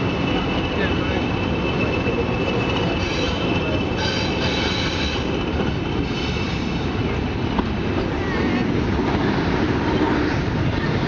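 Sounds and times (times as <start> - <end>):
train rumbling on track: 0.0 - 11.0
high-pitched wheel squeal: 1.4 - 6.8.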